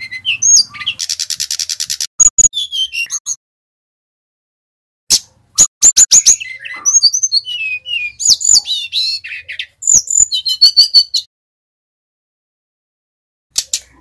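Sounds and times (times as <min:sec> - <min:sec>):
bird chips and whistles: 0:00.0 - 0:03.4, 0:05.1 - 0:11.3.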